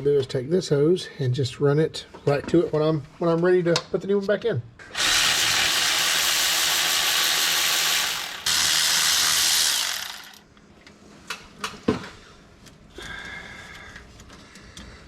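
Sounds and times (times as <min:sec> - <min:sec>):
handheld power tool running: 0:04.9 - 0:10.4.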